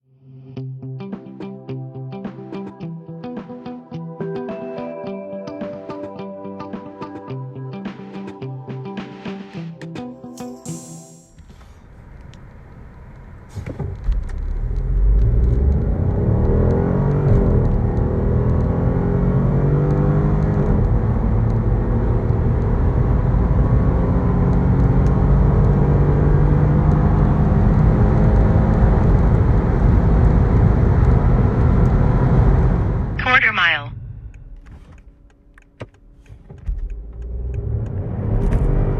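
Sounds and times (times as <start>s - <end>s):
car engine accelerating: 11.6s - 33.2s, 33.9s - 38.9s.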